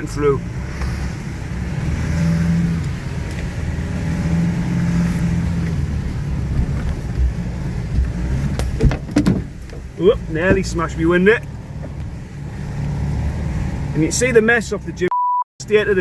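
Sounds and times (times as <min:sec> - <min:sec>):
off-road vehicle engine under load: 0:00.0 - 0:16.0
sharp knocks: 0:08.6 - 0:09.9.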